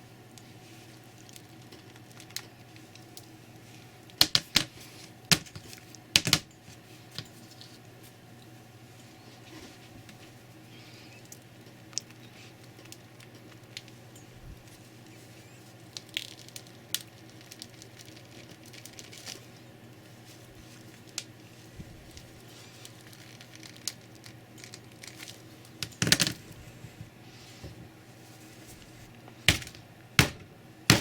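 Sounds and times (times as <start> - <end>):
cracked glass and plastic crackling: 1.1 - 3.3, 11.2 - 14.3, 15.0 - 19.7, 22.1 - 26.4.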